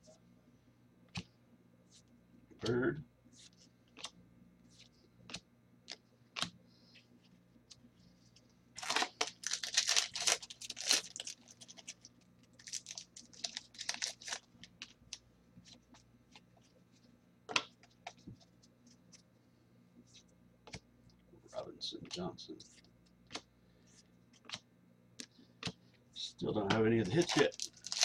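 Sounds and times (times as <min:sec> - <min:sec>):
cards clicking and sliding: 0:03.4 - 0:04.2
wrapper tearing and crinkling: 0:08.8 - 0:14.5, 0:27.1 - 0:28.0.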